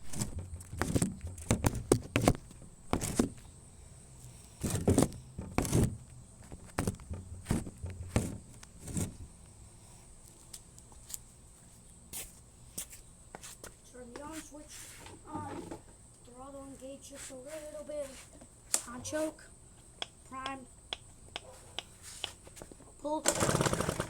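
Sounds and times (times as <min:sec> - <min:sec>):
footsteps: 0:00.0 - 0:03.4, 0:04.6 - 0:09.3
handling knocks and thuds: 0:00.0 - 0:03.4, 0:04.6 - 0:09.3.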